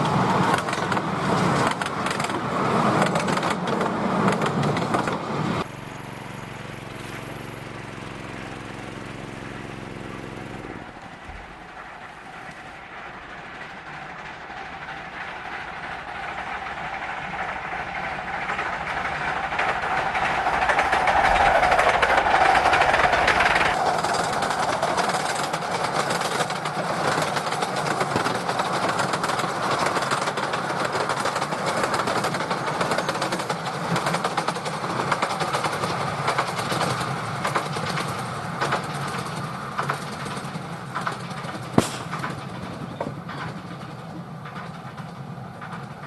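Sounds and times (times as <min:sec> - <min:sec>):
miniature steam train running: 0:00.0 - 0:46.0
wheel clicks: 0:13.5 - 0:46.0.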